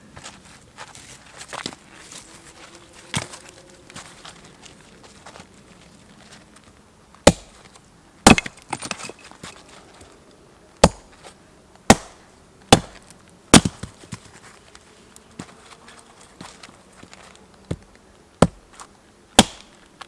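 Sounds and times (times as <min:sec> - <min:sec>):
axe chopping wood: 0:07.2 - 0:07.6, 0:08.2 - 0:09.0, 0:10.8 - 0:11.1, 0:11.9 - 0:14.0, 0:18.4 - 0:18.7, 0:19.4 - 0:19.7
wood splintering cracks: 0:19.4 - 0:19.8.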